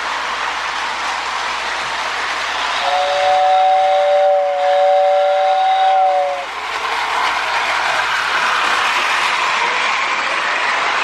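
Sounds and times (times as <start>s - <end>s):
toy locomotive running on track: 0.0s - 11.0s
toy train whistle: 2.7s - 6.5s.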